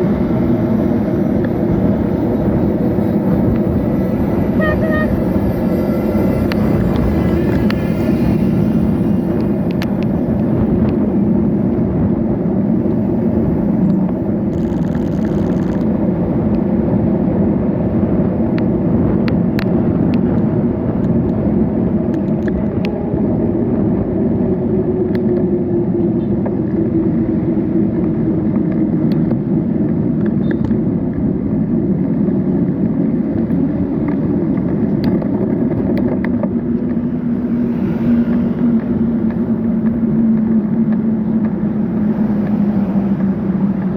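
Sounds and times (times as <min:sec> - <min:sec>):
bicycle ride noise: 0:00.0 - 0:43.9
road traffic rumble: 0:00.0 - 0:43.9
vehicle engine: 0:00.0 - 0:43.9.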